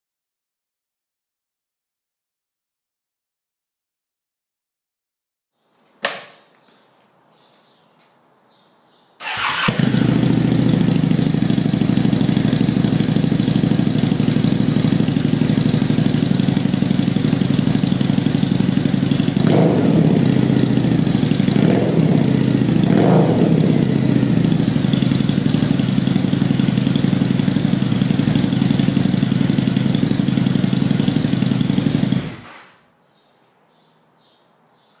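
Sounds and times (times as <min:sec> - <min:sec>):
motorcycle engine idling and revving: 0:09.2 - 0:32.6.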